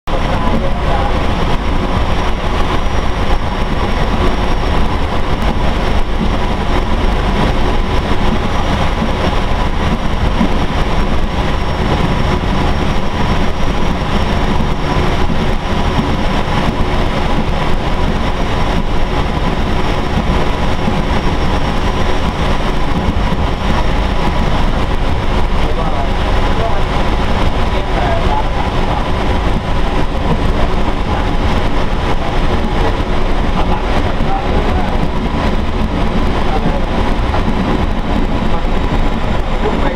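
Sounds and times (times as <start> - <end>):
train engine and wheel rumble: 0.1 - 39.9.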